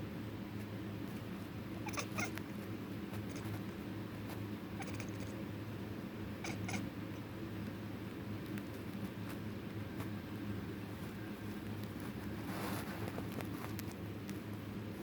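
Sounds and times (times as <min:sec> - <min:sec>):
steady low hum: 0:00.0 - 0:15.0
kitten chirping: 0:01.8 - 0:02.4, 0:03.2 - 0:03.6, 0:04.8 - 0:05.4, 0:06.4 - 0:07.3.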